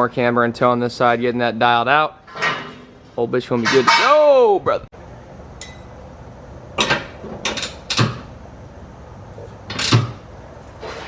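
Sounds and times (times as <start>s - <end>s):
low shop hum: 0.0s - 11.0s
tools and metal parts clanking: 2.2s - 4.2s, 9.7s - 10.2s.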